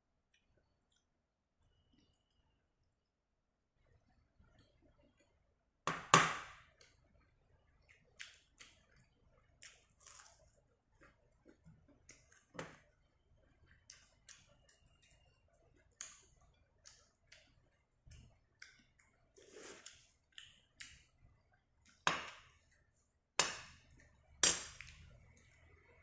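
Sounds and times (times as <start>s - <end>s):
crunching fried shrimp: 8.0s - 12.5s.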